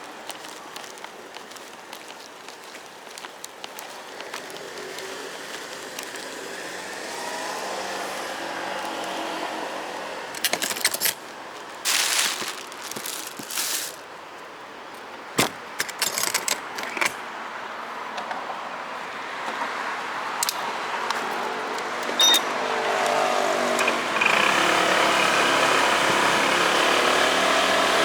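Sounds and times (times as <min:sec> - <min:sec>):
rustling of handling: 0:00.0 - 0:06.4, 0:10.4 - 0:17.2
vehicle and road noise: 0:00.0 - 0:28.0.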